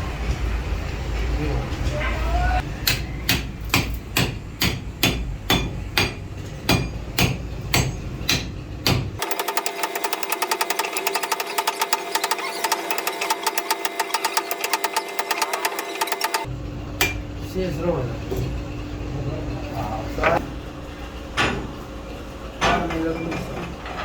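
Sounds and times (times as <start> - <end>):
machine ticking: 9.2 - 16.5
machine humming: 9.2 - 24.0.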